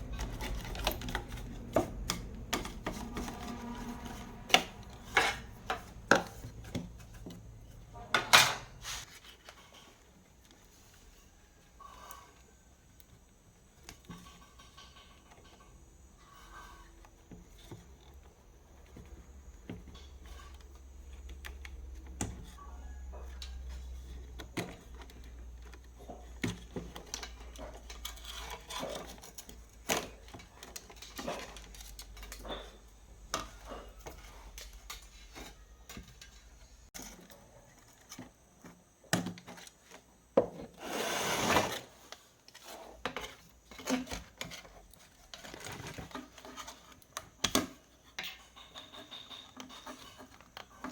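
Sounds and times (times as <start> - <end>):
rubbing and scraping: 0.0 - 10.2.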